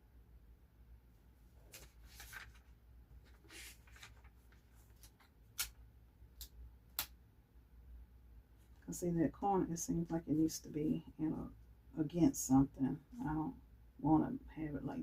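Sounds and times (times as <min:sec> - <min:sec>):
paper rustling: 0:01.5 - 0:05.8.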